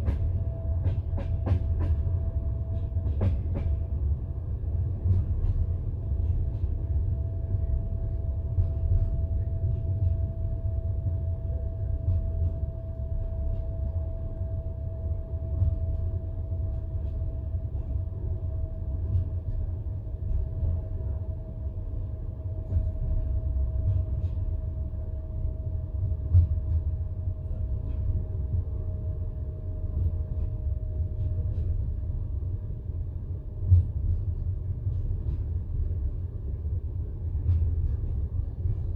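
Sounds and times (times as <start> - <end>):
train carriage knock: 0.0 - 3.8
train wheels rumbling on rails: 0.0 - 38.9.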